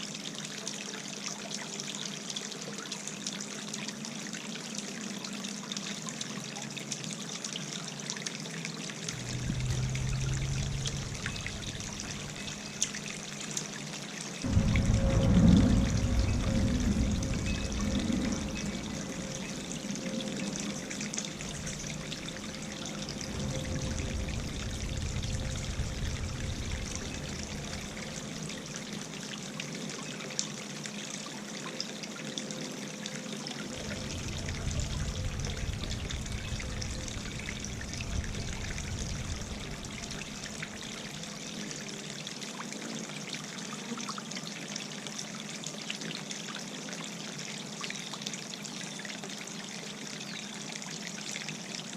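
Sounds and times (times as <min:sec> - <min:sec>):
fountain water trickling: 0:00.0 - 0:51.9
wind rumbling on microphone: 0:09.0 - 0:13.2, 0:14.4 - 0:29.5, 0:33.6 - 0:41.6.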